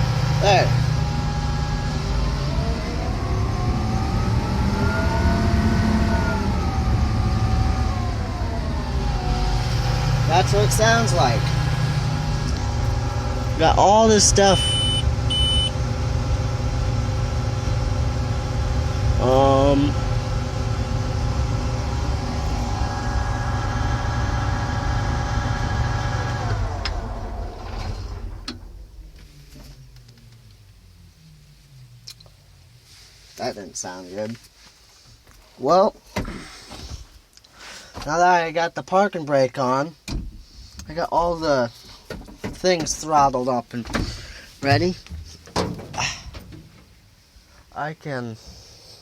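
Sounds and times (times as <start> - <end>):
heavy low engine rumble: 0.0 - 33.4
man talking: 0.4 - 0.8, 10.3 - 11.6, 13.5 - 14.8, 19.2 - 20.0, 33.4 - 34.4, 38.0 - 40.0, 40.9 - 41.8, 42.6 - 43.9, 44.6 - 45.1, 47.7 - 48.4
machinery whine: 0.6 - 32.2.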